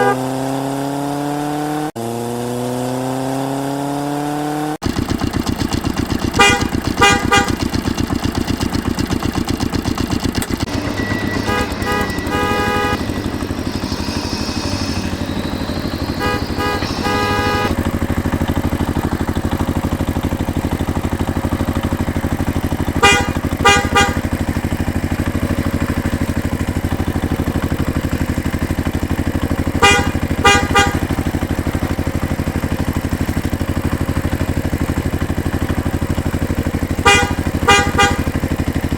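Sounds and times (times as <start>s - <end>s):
horn short toots: 0.0s - 0.5s, 6.4s - 7.6s, 10.5s - 18.0s, 22.9s - 24.5s, 29.7s - 31.3s, 37.0s - 38.4s
vehicle engine running: 4.8s - 38.9s.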